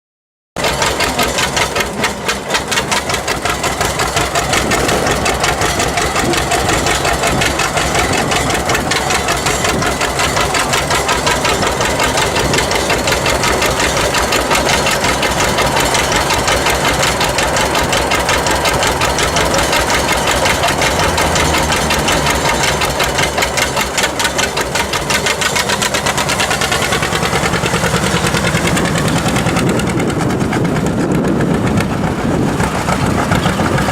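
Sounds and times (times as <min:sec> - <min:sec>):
two-cylinder engine putt-putt: 0:00.6 - 0:33.9.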